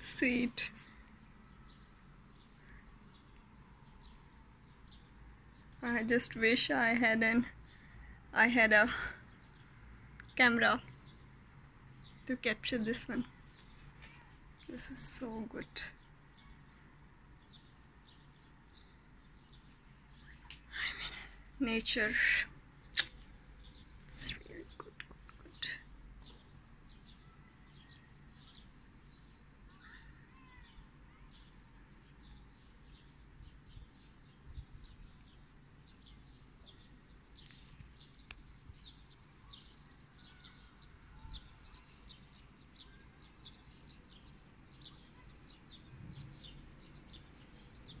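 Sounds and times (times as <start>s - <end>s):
faint high bird chirps: 22.1s - 48.0s.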